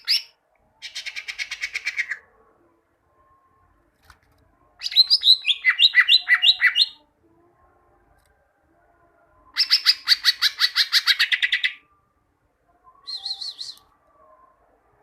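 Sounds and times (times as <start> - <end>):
bird singing: 4.8 - 7.1, 9.4 - 11.9, 12.7 - 14.5.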